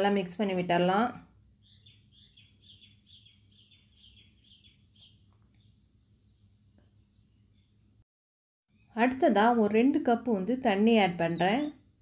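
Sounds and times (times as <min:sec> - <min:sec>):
faint bird chirping: 0:01.0 - 0:08.0, 0:08.7 - 0:12.0.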